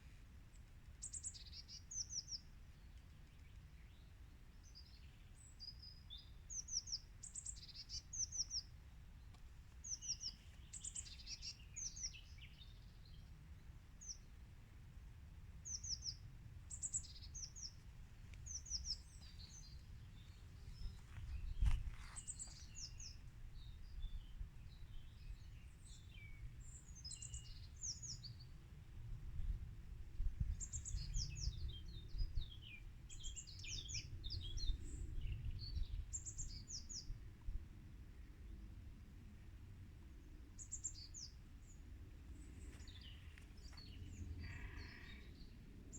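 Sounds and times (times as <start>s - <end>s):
small songbirds chirping: 0.4s - 14.4s, 15.5s - 37.5s, 40.0s - 45.9s
wind on microphone: 18.8s - 25.4s, 29.1s - 37.7s.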